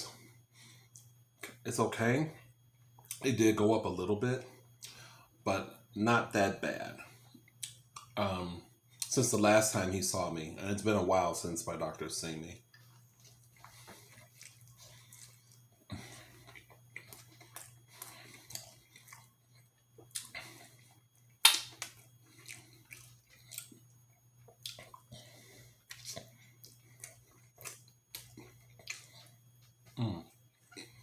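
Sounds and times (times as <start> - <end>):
steady low hum: 0.0 - 31.0
chewing and mouth clicks: 7.3 - 8.2, 12.7 - 31.0.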